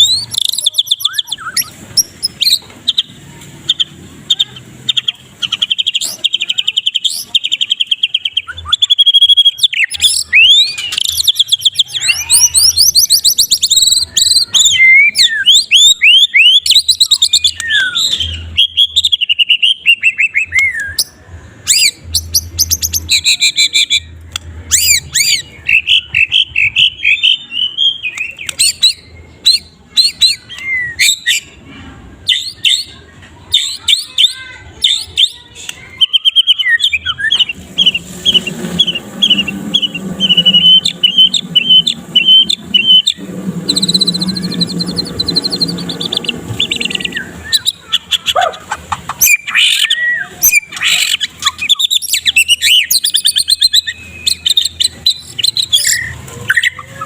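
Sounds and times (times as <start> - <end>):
bird singing trills: 0.0 - 24.1, 32.2 - 57.0
bird quick repeated notes: 36.0 - 57.0.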